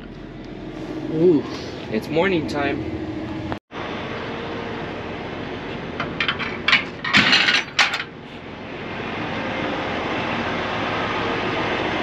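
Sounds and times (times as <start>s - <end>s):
steady low hum: 0.0s - 11.5s
metallic clinks and clanks: 6.1s - 8.1s.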